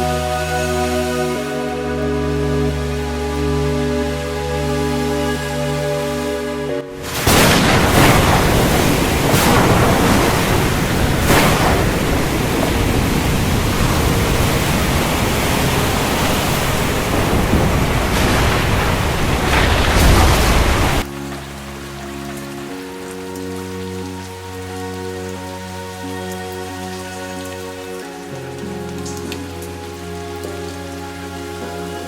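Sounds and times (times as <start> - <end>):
loud rushing noise: 6.9 - 21.0.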